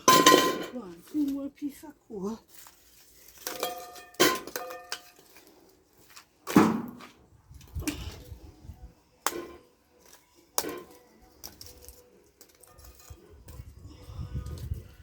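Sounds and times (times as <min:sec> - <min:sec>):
charcoal lumps dropping into stove: 0:09.2 - 0:13.0.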